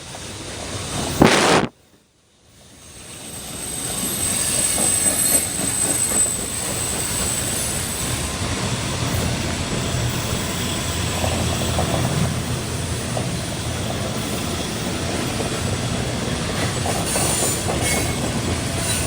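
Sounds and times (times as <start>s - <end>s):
freight train rumbling past: 3.0s - 19.0s
high-pitched wheel squeal: 3.7s - 8.0s.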